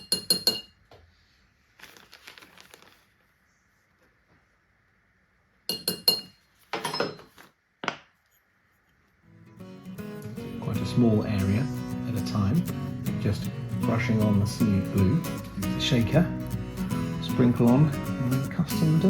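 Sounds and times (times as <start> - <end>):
dry powder and leaves rustling: 1.6 - 3.6.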